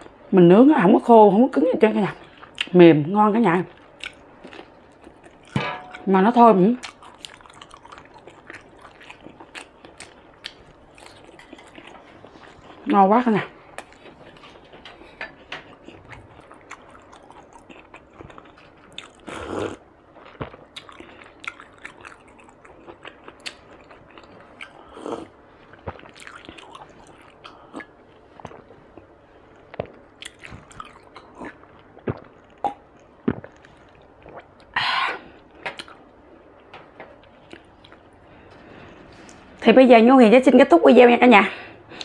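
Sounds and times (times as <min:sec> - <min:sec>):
wet chewing: 0:03.7 - 0:12.9, 0:13.7 - 0:34.7, 0:37.2 - 0:38.1.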